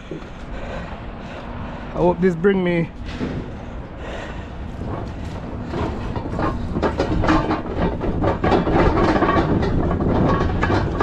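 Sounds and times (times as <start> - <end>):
low engine rumble: 0.0 - 11.0
scrap metal clattering: 3.0 - 11.0.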